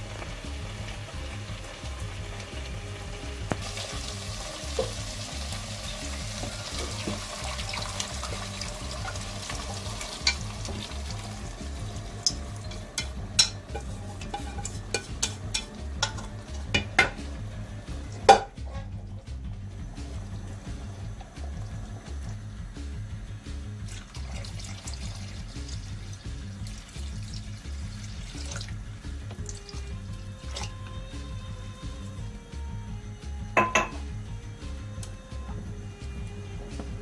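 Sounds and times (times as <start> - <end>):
food sizzling in a pot: 0.0 - 18.7, 19.7 - 32.1
quiet background music: 0.0 - 37.0
utensil knocking against a pot: 8.3 - 11.2, 12.2 - 17.4, 18.2 - 18.8, 33.6 - 34.0.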